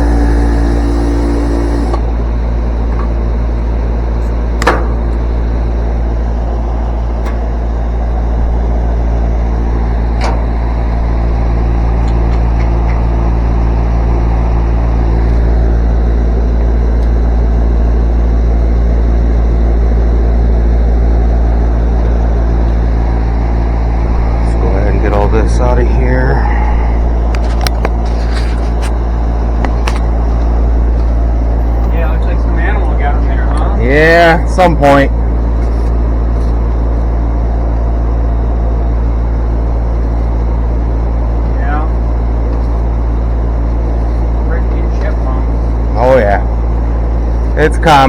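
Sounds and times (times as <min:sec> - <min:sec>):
condenser fan motor humming: 0:00.0 - 0:48.0.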